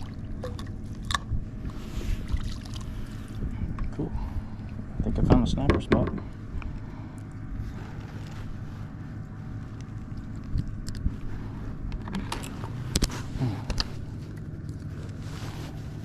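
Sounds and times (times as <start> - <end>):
low engine hum: 0.0 - 16.0
sharp clicks and knocks: 5.3 - 6.3.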